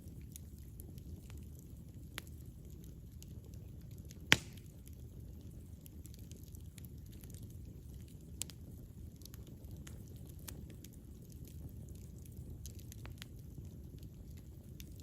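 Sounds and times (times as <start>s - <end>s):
campfire crackling: 0.0s - 15.0s
loud sharp pop: 4.3s - 4.6s.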